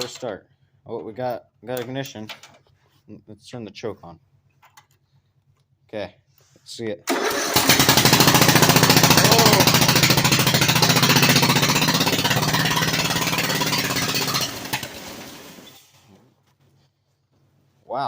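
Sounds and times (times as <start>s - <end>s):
tractor engine running: 7.1s - 15.6s.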